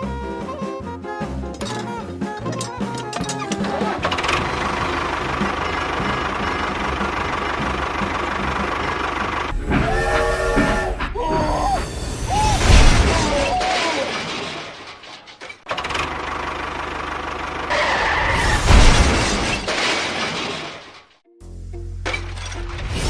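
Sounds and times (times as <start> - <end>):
gravel crunching and clattering: 18.6 - 21.2.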